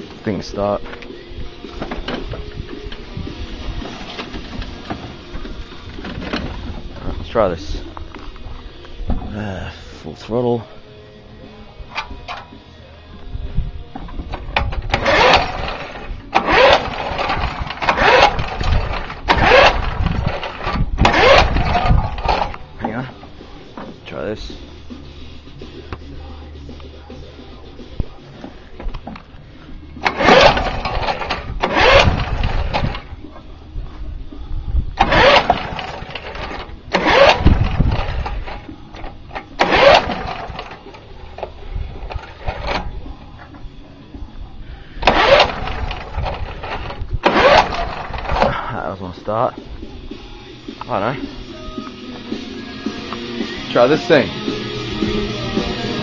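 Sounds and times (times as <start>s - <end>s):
lawn mower engine cranking: 0.0s - 8.5s, 11.8s - 12.6s, 13.9s - 24.5s, 28.4s - 33.5s, 34.9s - 43.7s, 44.9s - 49.4s
recoil starter cord pulls: 14.0s - 23.0s, 30.0s - 33.1s, 35.0s - 43.5s, 45.0s - 48.7s.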